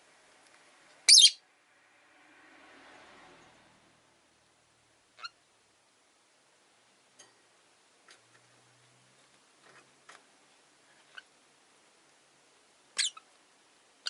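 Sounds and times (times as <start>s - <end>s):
lovebirds chirping: 1.1s - 1.4s, 12.9s - 13.3s.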